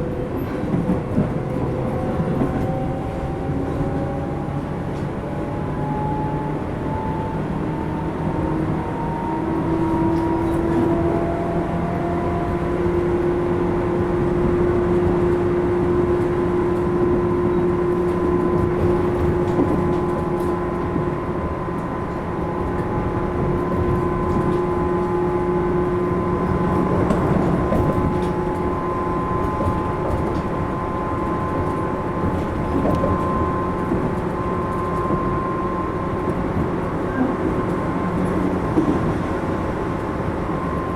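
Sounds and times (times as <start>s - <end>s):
wheels rumbling on rail: 0.0s - 40.9s.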